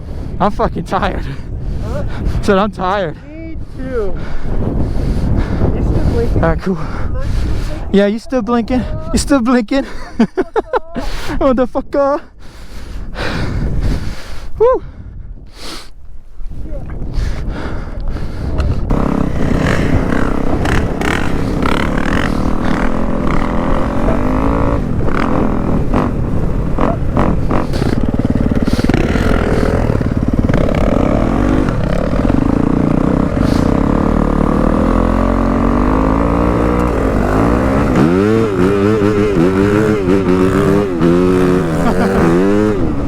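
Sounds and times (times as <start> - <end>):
dirt bike engine revving: 18.8 - 43.0.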